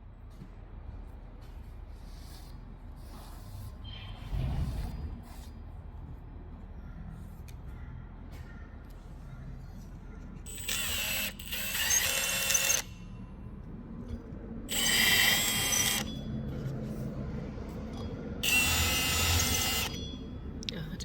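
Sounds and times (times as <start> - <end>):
power drill cutting steel with squeal: 10.5 - 13.3, 14.7 - 16.3, 18.4 - 20.2.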